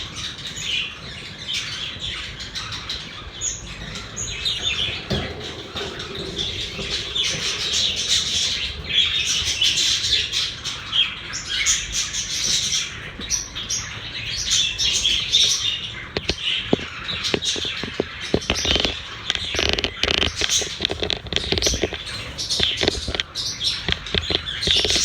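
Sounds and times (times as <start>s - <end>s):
budgerigars chattering: 0.0s - 25.0s
sharp taps: 16.2s - 25.0s.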